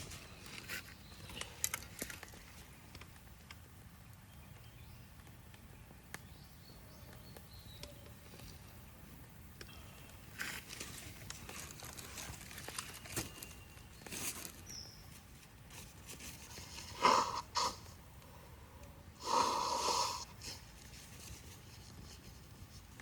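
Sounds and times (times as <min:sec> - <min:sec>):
wood fire crackling: 0:00.0 - 0:14.1.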